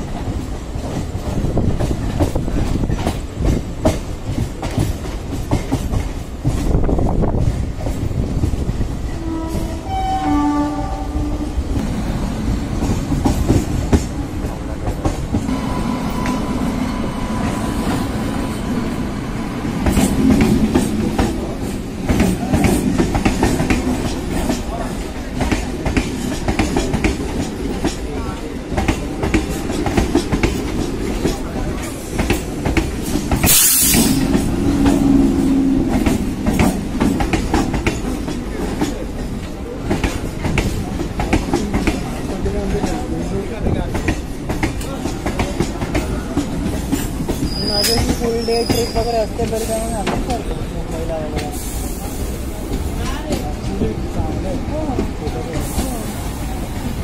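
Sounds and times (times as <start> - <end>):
train rumbling: 0.0 - 57.0
wheels clacking over rail joints: 19.4 - 51.7
short sharp hiss: 33.4 - 34.2.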